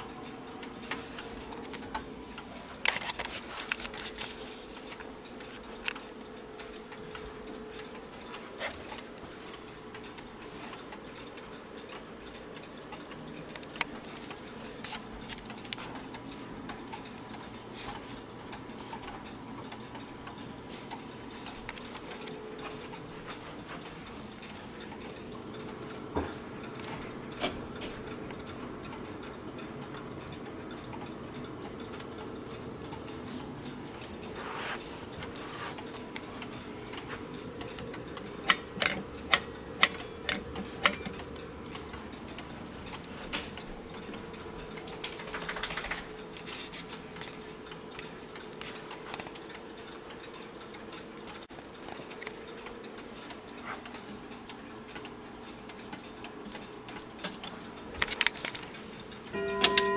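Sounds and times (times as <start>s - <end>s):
grandfather clock ticking: 0.0s - 59.9s
sharp metallic clicks: 36.1s - 46.5s.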